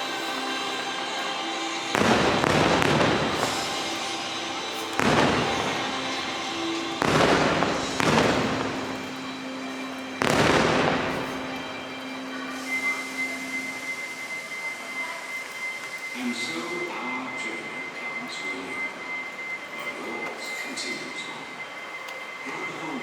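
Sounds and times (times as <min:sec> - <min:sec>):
faint music: 0:00.0 - 0:23.0
fireworks bangs: 0:01.8 - 0:12.9.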